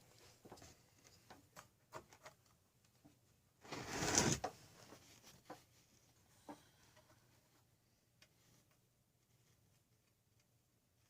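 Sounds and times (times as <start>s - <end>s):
sliding scrape: 3.6s - 4.5s.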